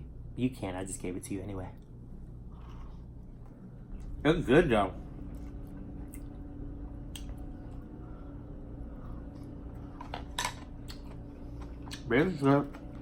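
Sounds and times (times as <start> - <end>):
low background hum: 0.0 - 13.0
person chewing food: 2.3 - 4.2, 5.1 - 12.1.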